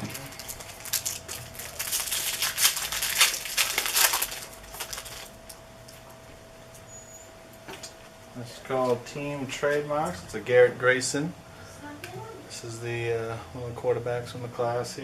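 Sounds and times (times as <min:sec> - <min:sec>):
wrapper crinkling and tearing: 0:00.0 - 0:05.6.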